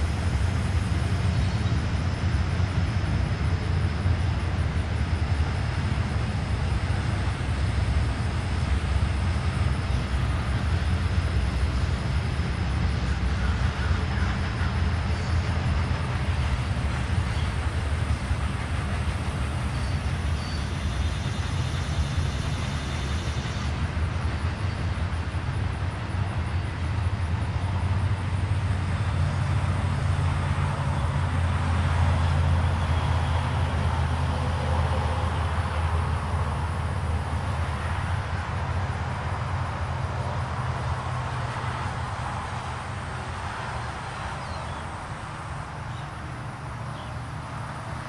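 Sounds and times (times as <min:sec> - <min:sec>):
freight train rumbling on rails: 0:00.0 - 0:48.0.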